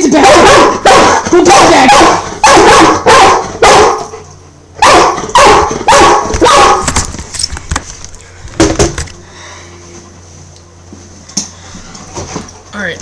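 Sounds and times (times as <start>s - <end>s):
dog barking: 0.0s - 4.2s, 4.8s - 6.9s.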